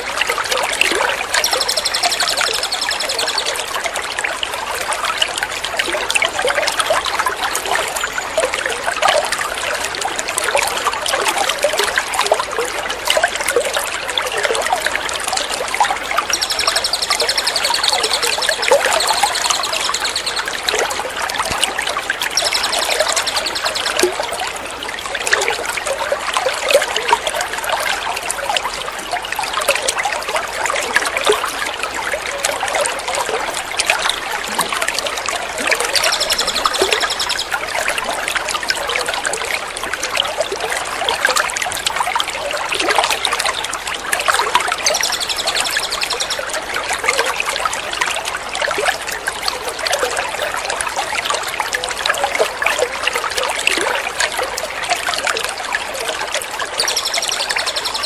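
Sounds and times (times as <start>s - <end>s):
water trickling and splashing: 0.0s - 58.0s
small bird trilling: 16.2s - 20.6s, 35.8s - 37.5s, 56.8s - 58.0s.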